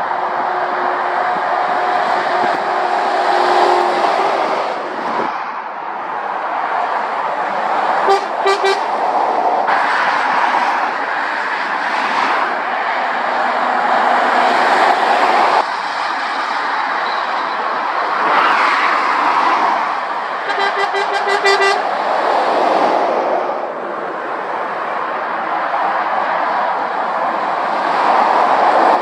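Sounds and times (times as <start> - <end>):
motorway traffic rushing: 0.0 - 29.0
vehicle horn short toots: 8.0 - 8.9, 20.5 - 21.8.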